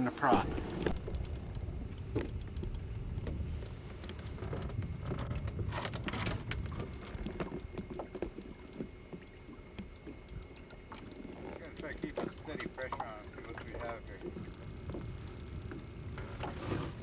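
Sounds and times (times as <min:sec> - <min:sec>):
outboard motor running: 0:00.1 - 0:17.0
sharp clicks and taps: 0:00.4 - 0:04.3.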